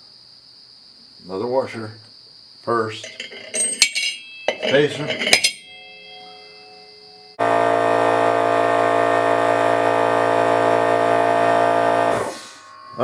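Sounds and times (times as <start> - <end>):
power tool motor running: 7.4 - 12.5.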